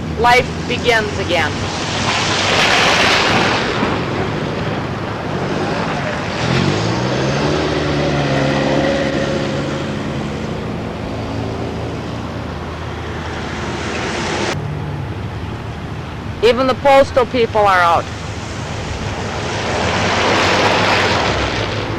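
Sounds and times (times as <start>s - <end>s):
vehicle engine passing: 0.0s - 16.8s, 18.0s - 21.9s
street noise hiss: 0.0s - 21.9s.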